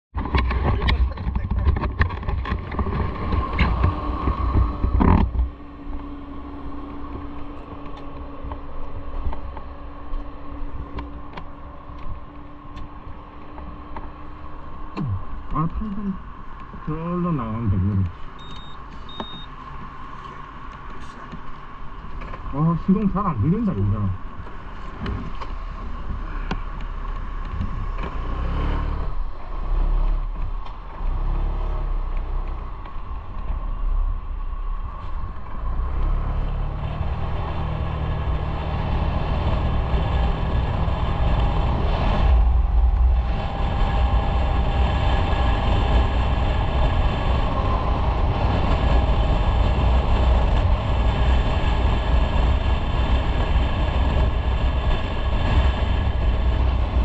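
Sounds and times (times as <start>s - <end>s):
motorcycle engine running: 0.2s - 16.7s.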